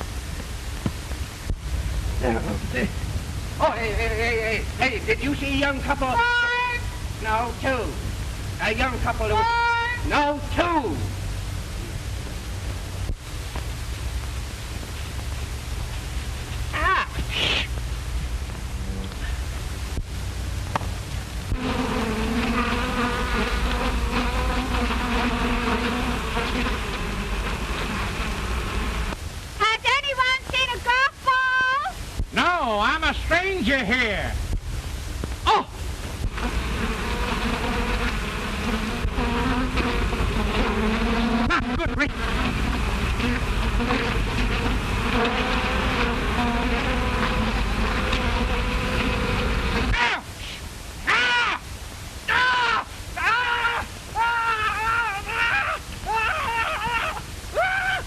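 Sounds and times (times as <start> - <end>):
film soundtrack hiss and hum: 0.0 - 58.0
bees buzzing: 21.4 - 29.2, 36.2 - 50.0.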